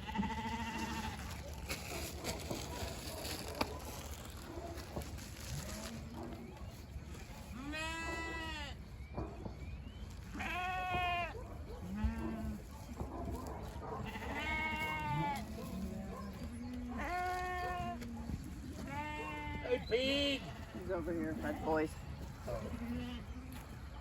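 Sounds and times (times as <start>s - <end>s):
loud high sheep bleats: 0.0s - 1.3s, 7.6s - 8.8s, 10.4s - 11.3s, 14.0s - 15.5s, 18.9s - 20.9s.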